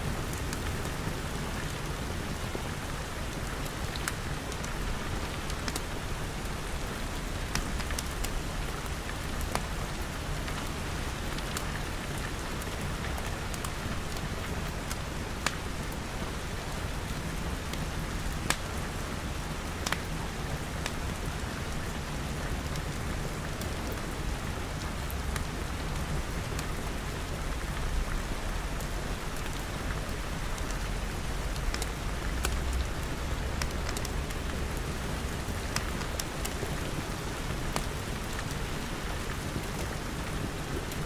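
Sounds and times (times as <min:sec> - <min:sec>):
wood fire crackling: 0:03.1 - 0:10.6, 0:11.3 - 0:18.8, 0:19.8 - 0:21.0, 0:23.4 - 0:41.0
rain pattering on glass: 0:22.7 - 0:41.0.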